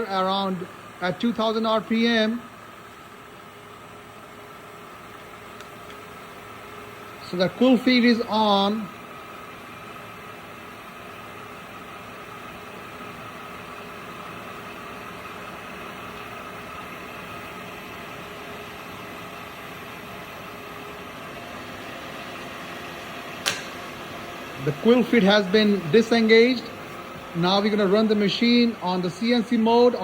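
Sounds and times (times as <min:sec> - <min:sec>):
milling machine hum and whine: 0:00.0 - 0:30.0.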